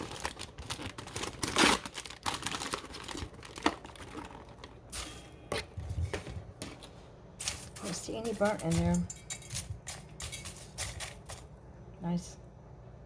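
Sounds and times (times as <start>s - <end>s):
paper popcorn bag crinkling: 0.0s - 9.0s.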